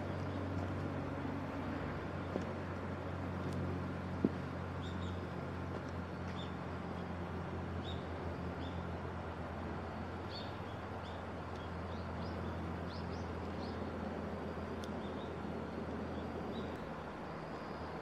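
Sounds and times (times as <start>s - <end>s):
steady low hum: 0.0s - 18.0s
small birds chirping: 4.7s - 9.0s, 10.2s - 18.0s.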